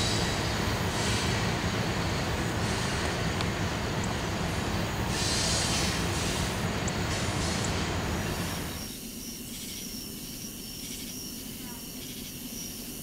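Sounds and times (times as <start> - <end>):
train wheels rumbling on rail: 0.0 - 8.8.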